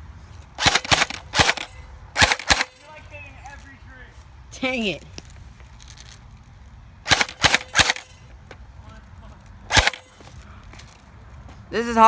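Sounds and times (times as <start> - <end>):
airsoft gun shots: 0.6 - 2.9, 7.0 - 8.3, 9.7 - 10.4.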